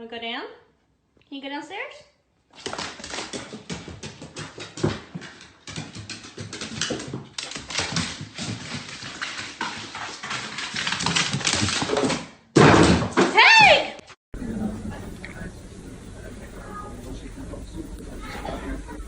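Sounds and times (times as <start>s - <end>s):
dog claws clicking and tapping: 2.6s - 12.2s.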